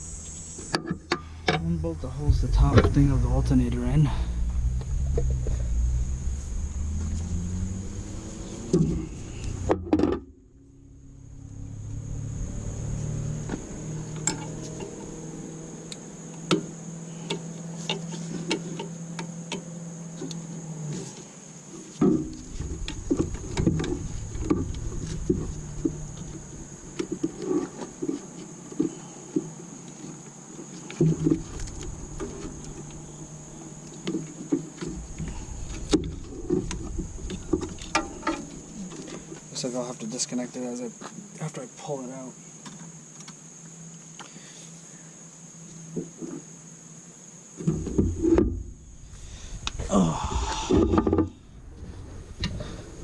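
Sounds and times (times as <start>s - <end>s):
hand tools clicking and knocking: 37.6s - 39.2s.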